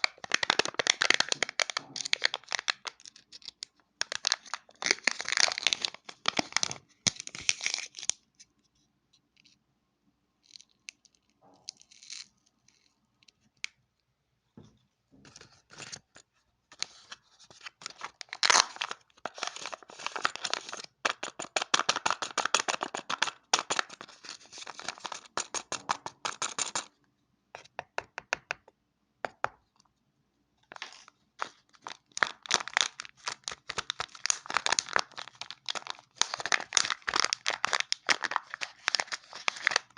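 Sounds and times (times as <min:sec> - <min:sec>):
packaging tearing and crinkling: 0:00.0 - 0:03.5, 0:04.1 - 0:08.2, 0:17.7 - 0:26.9, 0:30.7 - 0:39.9.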